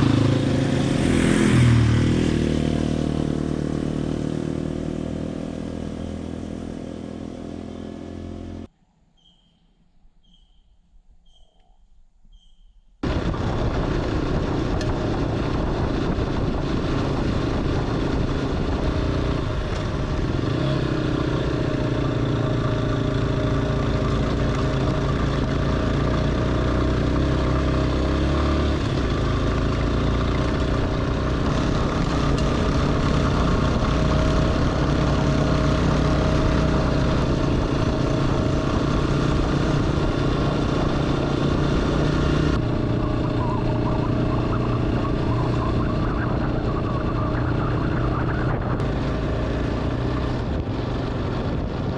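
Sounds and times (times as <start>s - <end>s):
motorcycle engine running: 0.0s - 8.7s, 13.0s - 51.9s.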